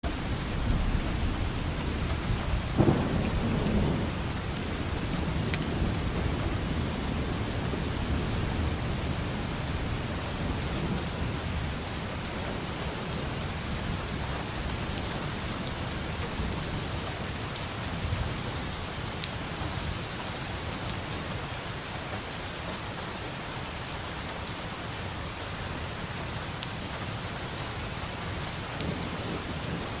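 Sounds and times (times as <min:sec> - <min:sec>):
rain heard from indoors: 0:00.0 - 0:30.0
rumbling thunder: 0:00.2 - 0:17.3, 0:28.6 - 0:30.0.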